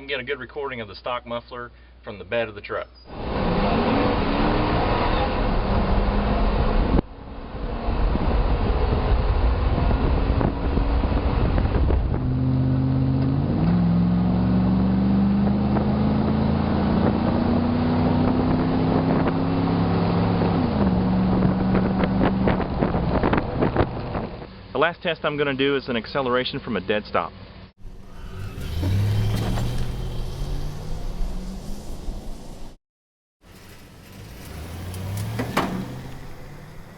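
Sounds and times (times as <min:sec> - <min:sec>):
truck exhaust rumble while driving: 0:03.2 - 0:24.6
wind noise on microphone: 0:05.6 - 0:13.5, 0:15.4 - 0:24.5.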